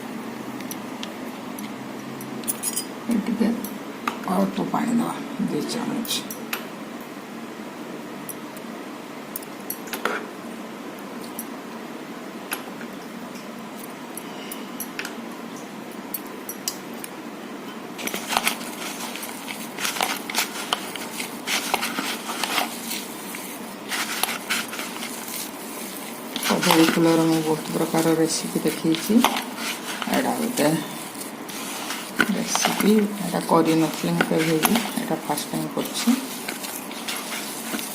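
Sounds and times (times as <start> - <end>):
background hiss: 10.0 - 37.9
batter squishing in a bowl: 18.0 - 37.9.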